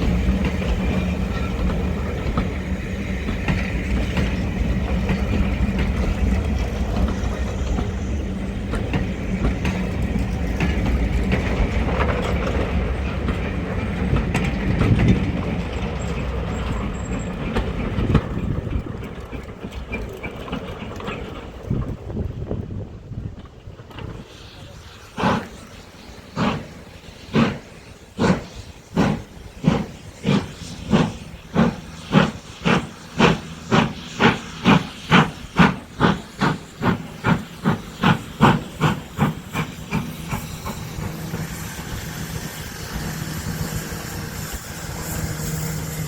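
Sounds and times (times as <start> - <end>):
metallic clanks on rails: 0.0 - 22.2
diesel locomotive engine running: 0.0 - 46.0.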